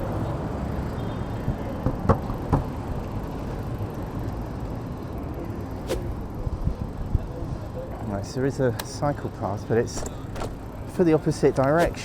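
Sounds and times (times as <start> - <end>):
wind and road rumble: 0.0 - 12.0.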